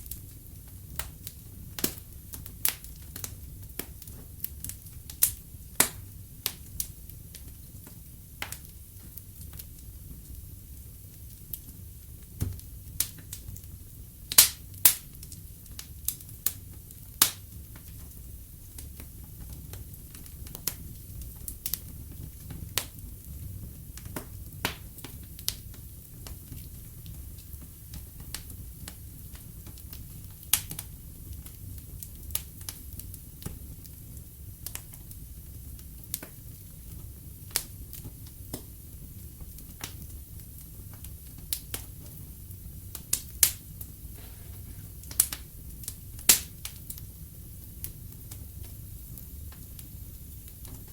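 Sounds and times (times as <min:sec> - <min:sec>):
burning logs popping: 0:00.0 - 0:50.9
low rumble of flames: 0:00.0 - 0:50.9.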